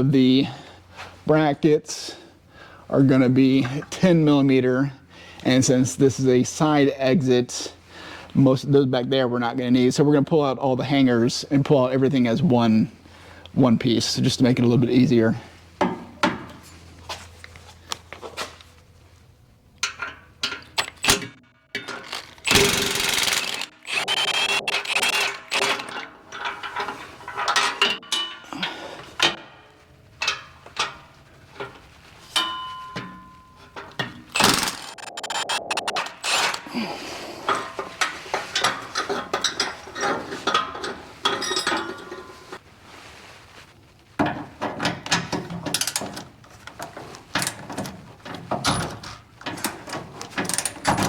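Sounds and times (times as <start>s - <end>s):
power tool running: 22.4s - 25.8s.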